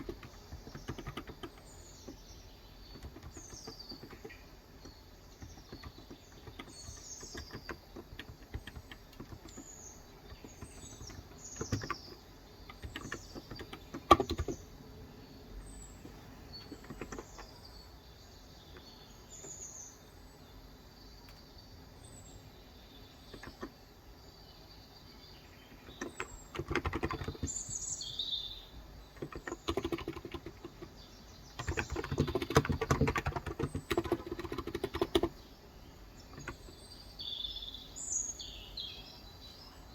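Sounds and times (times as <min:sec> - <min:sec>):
fast keyboard typing: 0:00.0 - 0:14.6, 0:16.6 - 0:17.5, 0:23.3 - 0:23.8, 0:25.8 - 0:27.8, 0:29.1 - 0:31.0, 0:31.6 - 0:35.4, 0:36.3 - 0:36.8
small birds chirping: 0:00.0 - 0:39.9.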